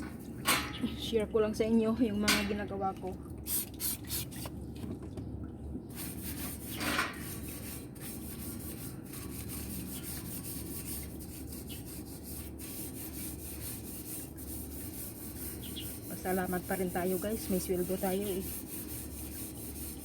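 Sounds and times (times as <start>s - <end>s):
grill being scrubbed: 6.0s - 20.0s.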